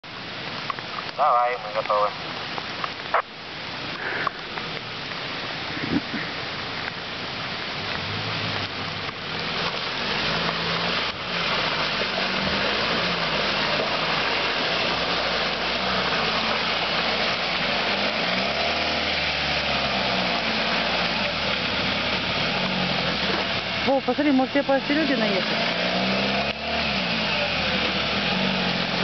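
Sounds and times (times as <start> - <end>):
off-road vehicle engine: 0.0 - 29.0.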